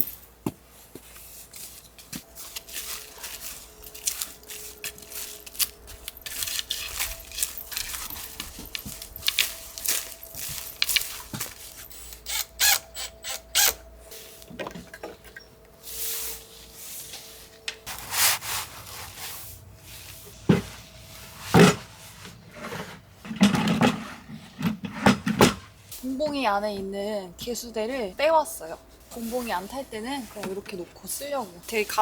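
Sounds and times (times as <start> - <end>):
objects scraping: 14.1 - 26.0.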